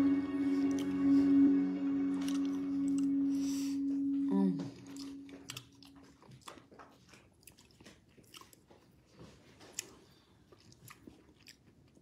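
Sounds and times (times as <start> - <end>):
chewing and mouth smacks: 4.9 - 12.0.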